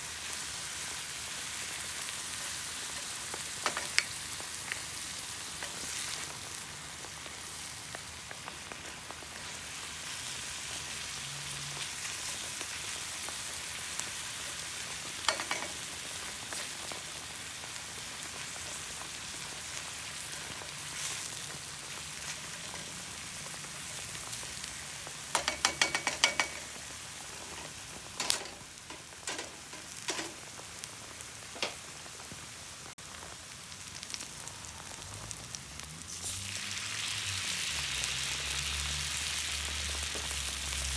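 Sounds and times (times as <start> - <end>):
food sizzling in oil: 0.0 - 40.9
utensil clinking on pan: 15.3 - 15.8, 25.3 - 26.8.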